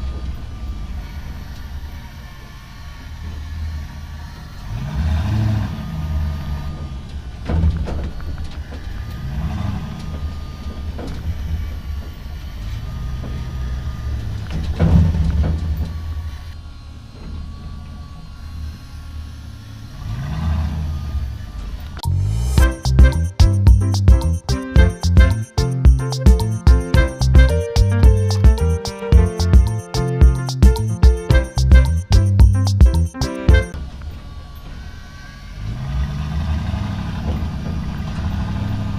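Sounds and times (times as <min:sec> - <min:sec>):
engine revving: 0:03.9 - 0:06.8, 0:35.6 - 0:38.9.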